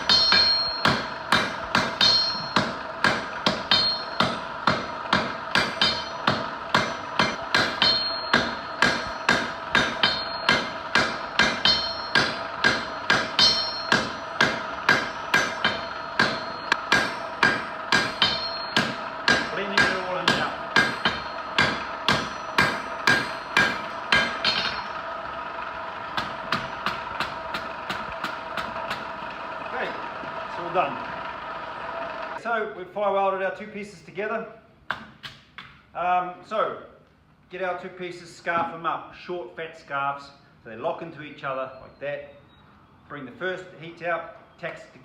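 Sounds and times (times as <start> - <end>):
hammer striking steel on anvil: 0.0 - 25.2, 26.1 - 29.2
anvil ringing: 0.0 - 29.1.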